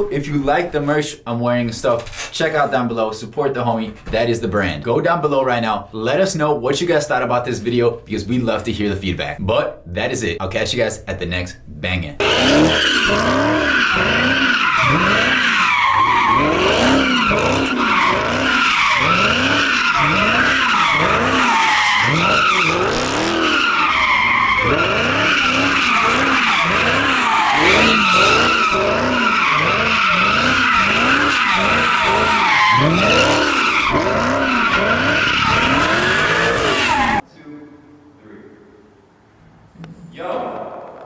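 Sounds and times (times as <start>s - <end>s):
car drivetrain whine: 12.2s - 37.2s
tyres squealing and skidding: 12.2s - 37.2s.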